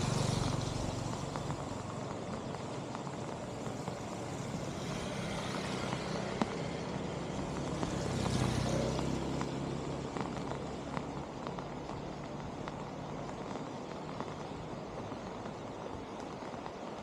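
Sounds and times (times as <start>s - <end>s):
vehicle passing by: 0.0s - 1.8s, 4.2s - 10.8s
steady rushing noise: 0.0s - 17.0s.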